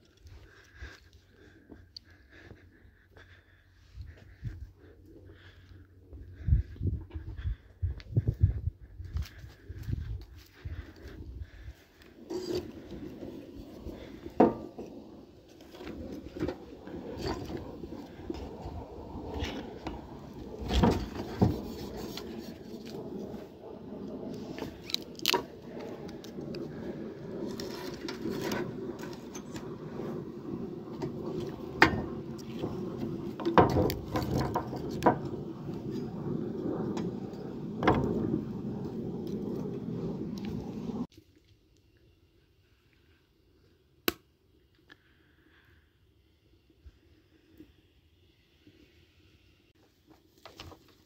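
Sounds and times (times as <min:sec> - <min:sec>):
steady low hum: 0:00.0 - 0:41.1
knocks and scrapes of handling: 0:12.2 - 0:23.4, 0:30.9 - 0:41.1.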